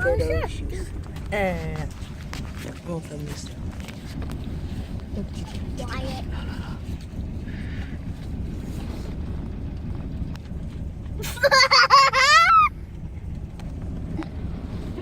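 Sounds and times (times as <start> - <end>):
car interior rumble: 0.0 - 15.0
child squealing: 12.2 - 12.7.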